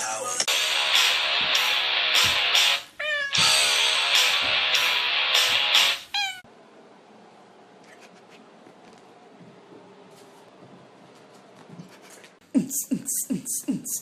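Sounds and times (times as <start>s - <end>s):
loud music with steady beat: 0.0s - 6.1s
cat meowing: 3.0s - 3.5s, 6.1s - 6.4s.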